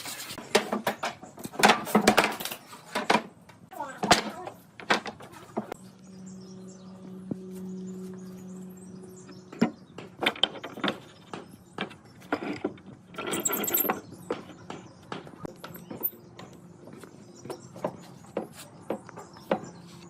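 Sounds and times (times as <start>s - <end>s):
wooden parts knocking and clicking: 9.5s - 16.1s.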